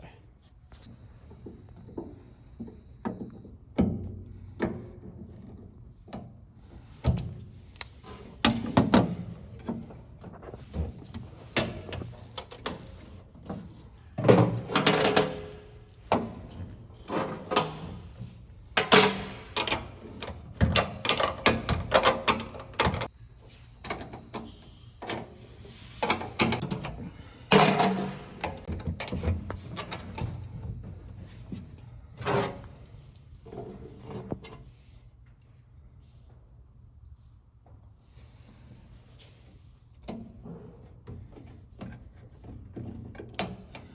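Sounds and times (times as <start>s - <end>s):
metallic clanks and rattles: 10.8s - 23.1s, 25.9s - 31.4s.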